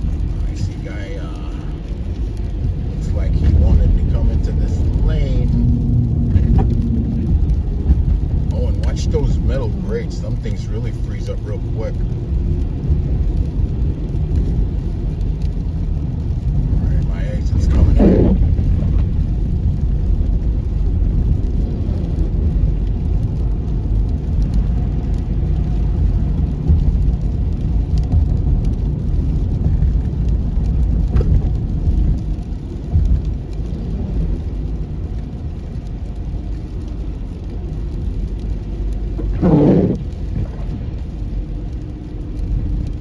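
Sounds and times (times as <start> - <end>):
car engine and tyre rumble: 0.0 - 43.0.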